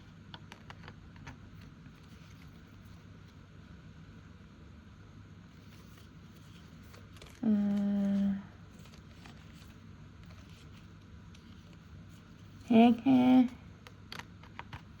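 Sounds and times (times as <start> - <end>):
woman humming: 7.4 - 8.6, 12.6 - 13.6.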